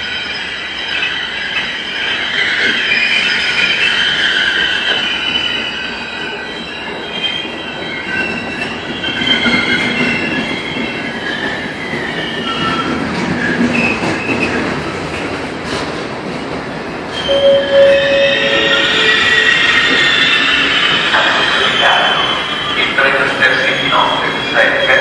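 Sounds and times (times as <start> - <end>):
train carriages rumbling: 0.2 - 25.0
high brake squeals: 17.2 - 25.0.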